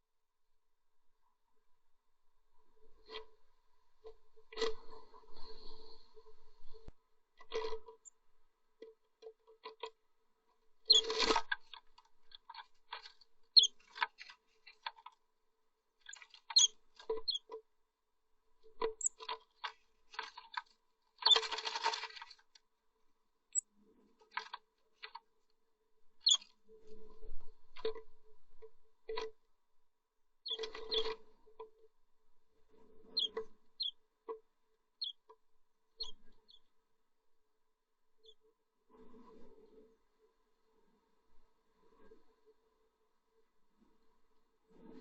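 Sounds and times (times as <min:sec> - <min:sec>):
claws scratching on wood: 0:18.9 - 0:22.4
birds rustling in nest box: 0:19.0 - 0:22.4.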